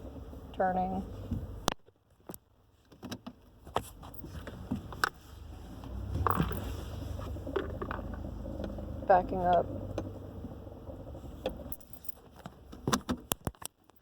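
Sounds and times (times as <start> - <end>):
vehicle engine rumble: 0.0 - 14.0
vehicle knocking and clicking: 7.4 - 11.7.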